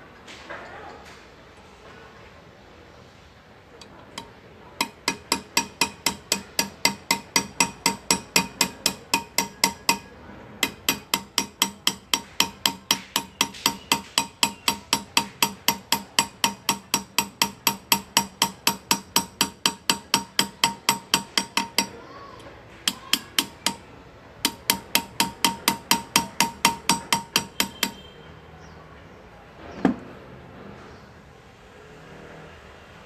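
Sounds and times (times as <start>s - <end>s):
hammer tapping chisel into metal: 3.8s - 28.2s.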